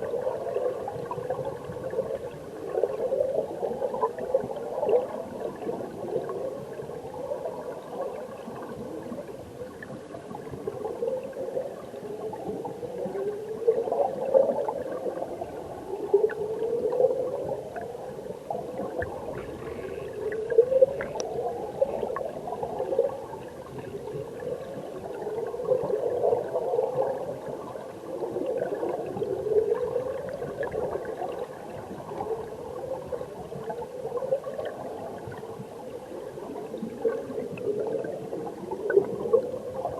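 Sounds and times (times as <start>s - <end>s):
underwater stream gurgling: 0.0s - 39.9s
faint ticks: 19.0s - 21.4s.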